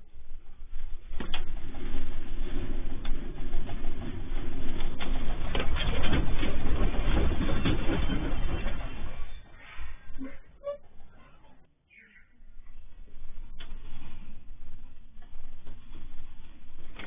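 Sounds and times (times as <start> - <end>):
deep earthquake rumble: 0.0 - 17.0
objects rattling and clattering: 0.1 - 11.2.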